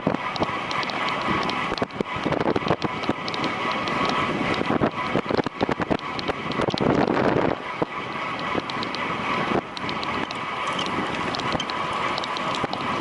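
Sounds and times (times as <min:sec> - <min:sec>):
bicycle clicks and rattles: 0:00.0 - 0:13.0
wind rushing over microphone: 0:00.0 - 0:13.0.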